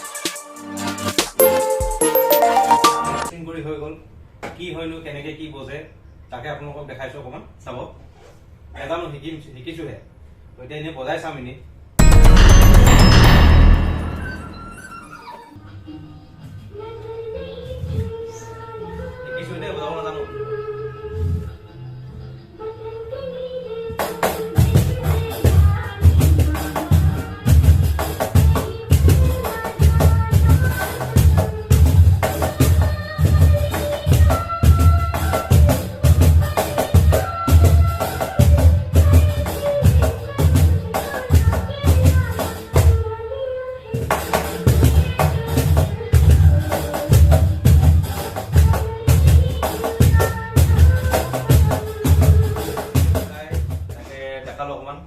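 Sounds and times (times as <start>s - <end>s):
song with melody: 1.4s - 3.3s, 12.0s - 15.0s
cajon played by hand: 44.0s - 54.0s.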